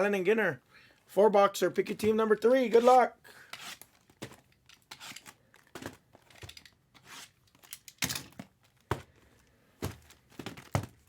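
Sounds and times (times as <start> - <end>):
cardboard boxes knocking: 9.8 - 11.0.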